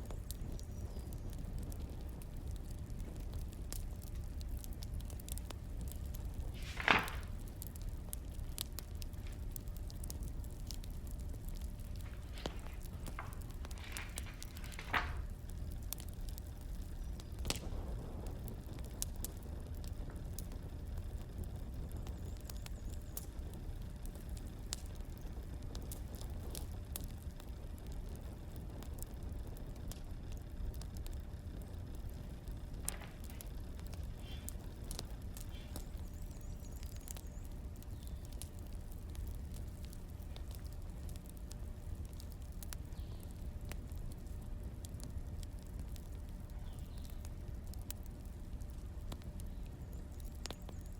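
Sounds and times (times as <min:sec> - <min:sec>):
firewood crackling and popping: 0:00.0 - 0:50.9
low steady rumble: 0:00.0 - 0:50.9
loud hissing pop: 0:06.5 - 0:07.6.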